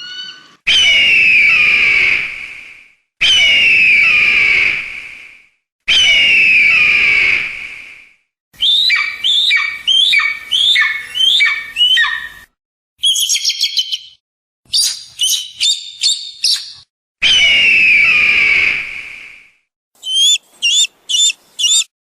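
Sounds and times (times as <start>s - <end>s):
eagle screaming: 0.0s - 2.2s, 5.9s - 7.4s, 8.6s - 12.4s, 20.0s - 21.9s
eagle whistled notes: 20.0s - 21.9s
eagle chittering: 20.0s - 22.0s.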